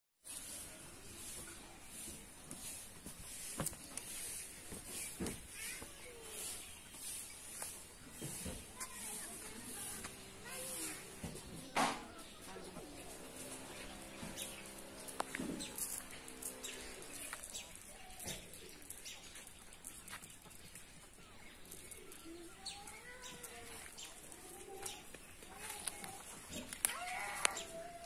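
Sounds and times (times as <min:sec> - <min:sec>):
birds calling: 0:02.6 - 0:28.0.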